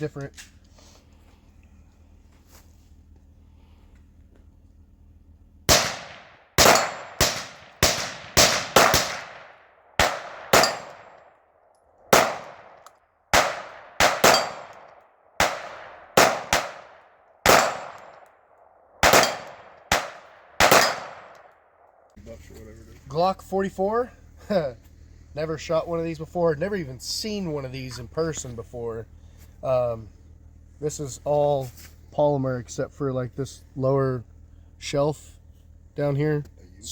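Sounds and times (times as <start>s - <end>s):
pistol shots: 5.7s - 11.4s, 12.0s - 18.4s, 19.0s - 21.8s.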